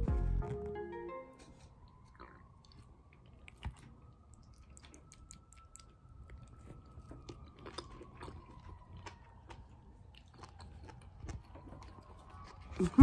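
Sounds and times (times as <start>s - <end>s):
person chewing food: 1.7s - 13.0s
wet mouth clicks and smacks: 2.0s - 9.1s.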